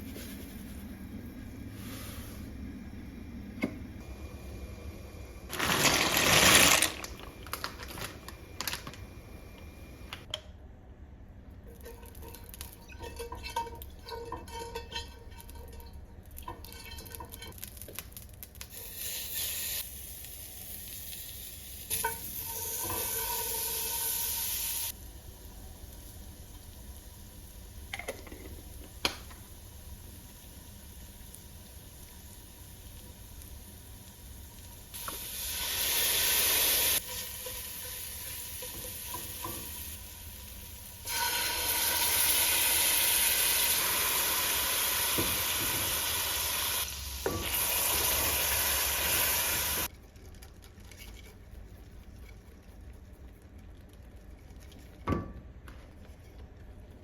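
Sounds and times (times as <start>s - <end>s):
dishes and utensils clattering: 11.7s - 17.6s.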